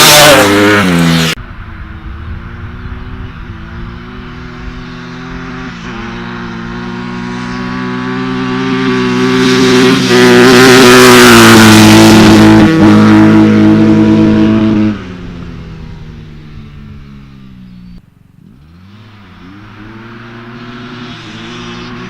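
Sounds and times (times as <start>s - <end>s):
dirt bike engine running: 0.0s - 21.9s.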